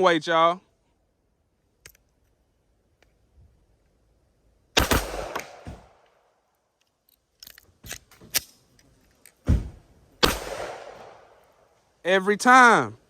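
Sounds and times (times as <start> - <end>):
pistol shots: 4.8 - 6.0, 10.2 - 11.4.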